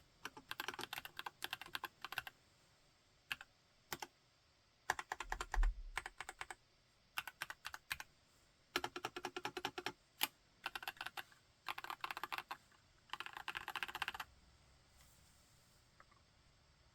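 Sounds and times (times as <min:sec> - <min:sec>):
mechanical keyboard typing: 0:00.2 - 0:02.3, 0:03.3 - 0:04.1, 0:04.9 - 0:06.6, 0:07.2 - 0:08.0, 0:08.8 - 0:14.3.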